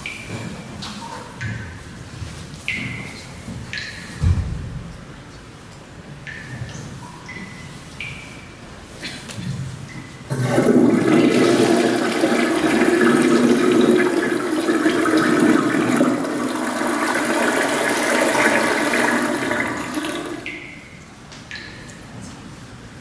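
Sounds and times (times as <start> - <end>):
toilet flushing: 10.3 - 20.7.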